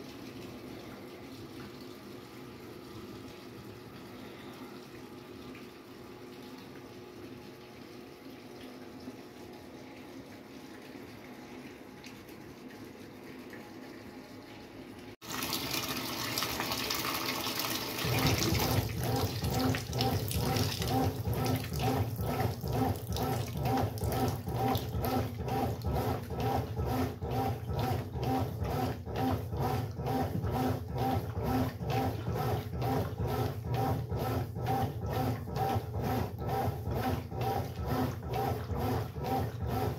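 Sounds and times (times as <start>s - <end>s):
washing machine motor churning: 0.0s - 39.9s
water running in softly: 0.0s - 39.9s.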